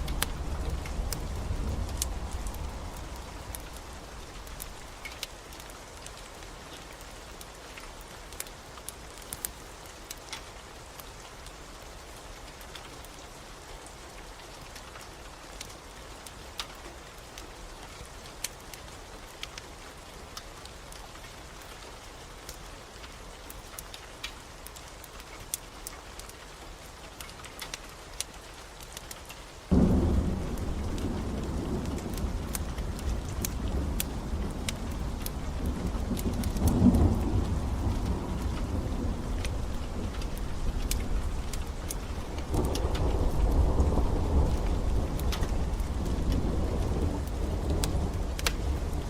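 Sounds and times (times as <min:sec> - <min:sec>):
low thunder rumble: 0:00.0 - 0:04.9, 0:29.7 - 0:49.0
wood fire crackling: 0:00.0 - 0:11.5, 0:22.4 - 0:49.0
rain hiss: 0:00.0 - 0:49.0.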